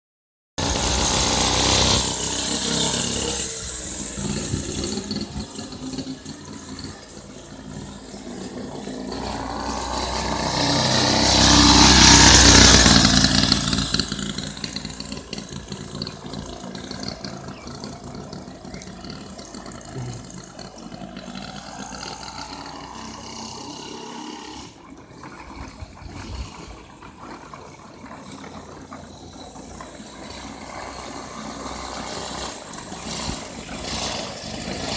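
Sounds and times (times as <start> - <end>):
minibike engine passing: 0.6 - 34.9.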